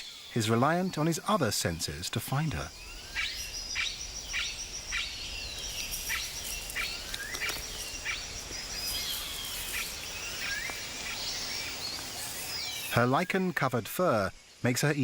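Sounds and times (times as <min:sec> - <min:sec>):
high insect drone: 0:00.0 - 0:15.0
birds chirping and whistling: 0:01.9 - 0:13.5.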